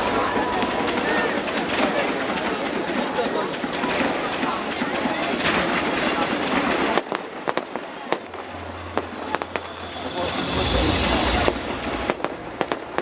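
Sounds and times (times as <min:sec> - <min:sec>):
fireworks bangs and cracks: 0:00.0 - 0:13.0
loud hissing rush: 0:00.0 - 0:13.0
low rumble: 0:08.2 - 0:13.0.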